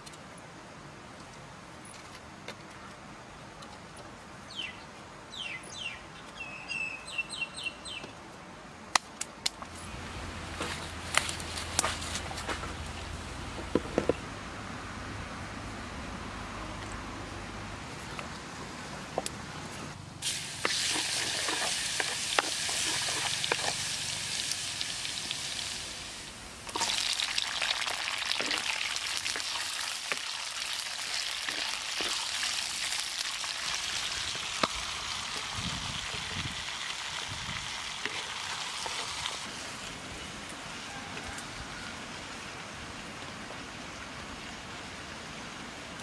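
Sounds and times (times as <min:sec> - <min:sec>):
garlic sizzling in hot oil: 0:20.2 - 0:39.7.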